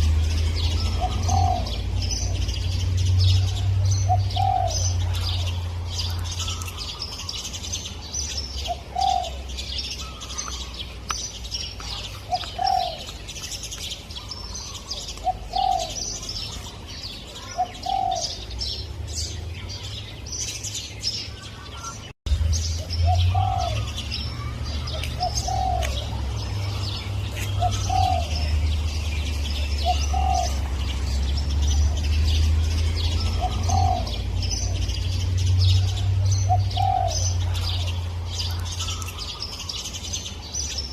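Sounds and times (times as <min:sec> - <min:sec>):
small birds chirping: 0:00.0 - 0:40.9
dove cooing: 0:00.7 - 0:02.5, 0:03.4 - 0:07.4, 0:08.7 - 0:10.7, 0:11.9 - 0:13.1, 0:14.2 - 0:16.7, 0:17.4 - 0:18.5, 0:23.0 - 0:28.6, 0:29.8 - 0:31.1, 0:33.0 - 0:35.0, 0:35.8 - 0:37.9.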